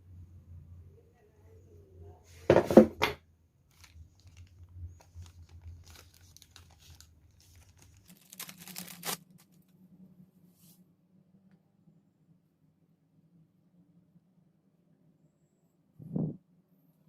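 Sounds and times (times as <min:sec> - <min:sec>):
rustling and crinkling handling: 0:03.6 - 0:09.7.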